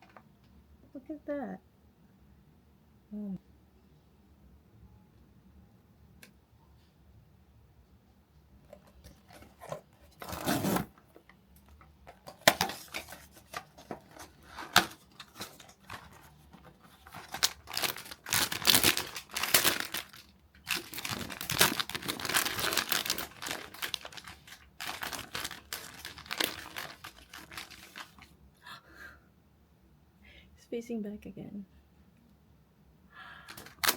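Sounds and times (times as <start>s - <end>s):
packaging tearing and crinkling: 9.3s - 11.0s, 12.1s - 28.3s, 33.5s - 33.9s.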